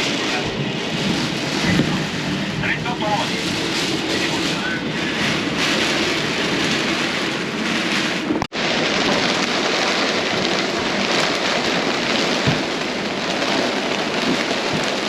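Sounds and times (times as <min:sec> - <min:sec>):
heavy rain hissing: 0:00.0 - 0:07.0.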